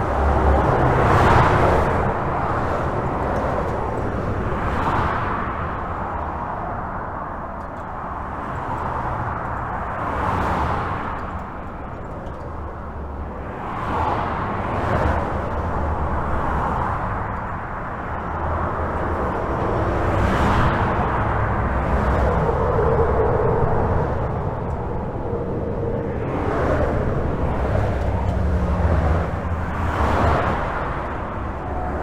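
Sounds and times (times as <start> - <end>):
highway traffic rush: 0.0 - 32.0
vehicles passing: 0.0 - 32.0.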